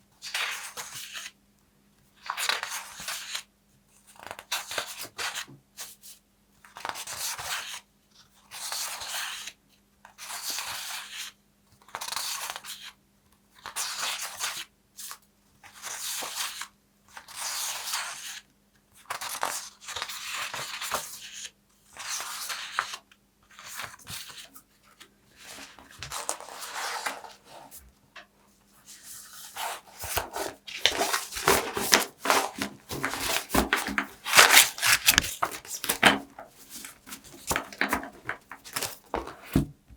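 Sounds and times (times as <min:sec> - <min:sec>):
paper tearing: 0:29.5 - 0:39.6.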